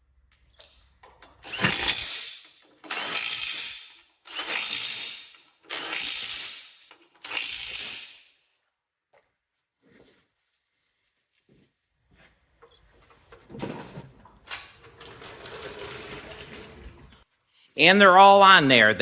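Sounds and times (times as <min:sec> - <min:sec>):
ratchet wrench ratcheting: 0:01.3 - 0:08.3.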